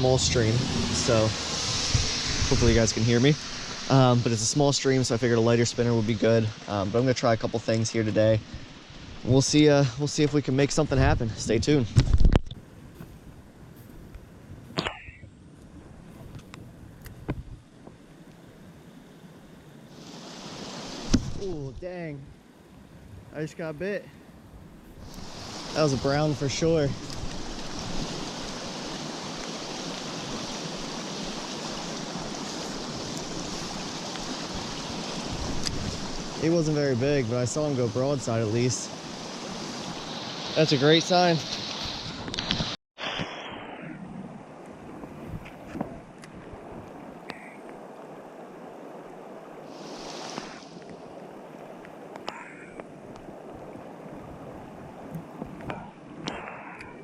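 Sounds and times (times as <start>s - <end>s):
stream water rushing: 0.0s - 11.0s, 18.1s - 24.0s, 25.0s - 43.6s, 44.4s - 57.0s
brief high hiss: 41.5s - 44.0s.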